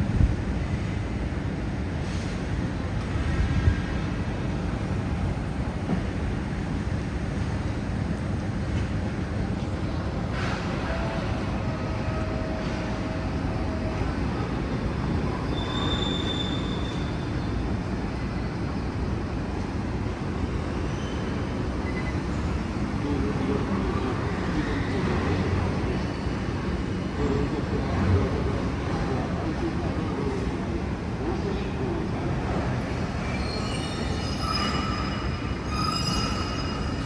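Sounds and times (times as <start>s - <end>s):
brief high squeal: 15.4s - 17.4s, 20.9s - 22.4s, 33.2s - 37.0s.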